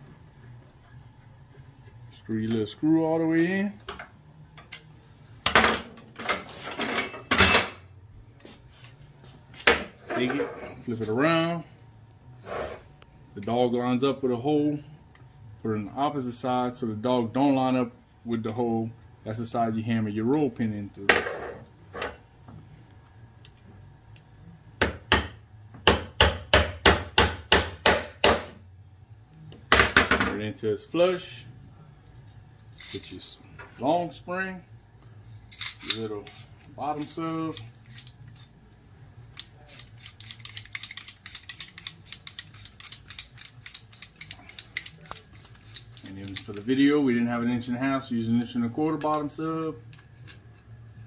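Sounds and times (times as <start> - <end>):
hammer striking a pin: 24.8 - 28.6.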